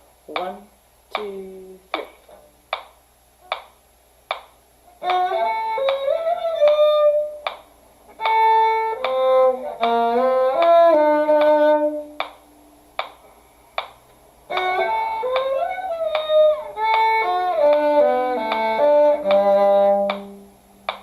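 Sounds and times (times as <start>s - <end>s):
metronome clicks: 2.7s - 13.2s, 13.8s - 21.0s
solo violin melody: 5.0s - 7.5s, 8.1s - 12.3s, 14.5s - 20.6s.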